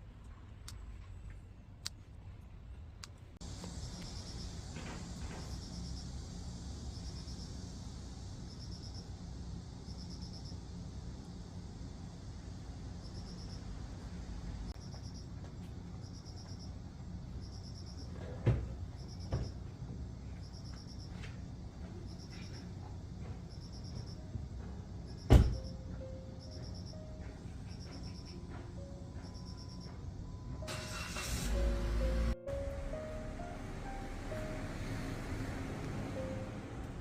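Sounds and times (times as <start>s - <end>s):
low steady background rumble: 0.0s - 37.0s
insect chirping in high trills: 3.4s - 10.8s, 13.0s - 13.7s, 25.0s - 28.5s.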